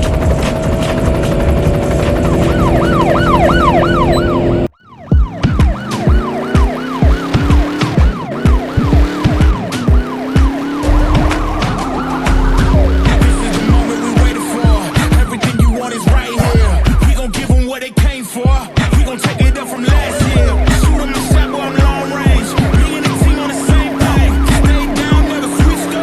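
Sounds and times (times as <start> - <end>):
police siren yelp: 0.8 - 26.0
low thumping beat: 5.1 - 25.8.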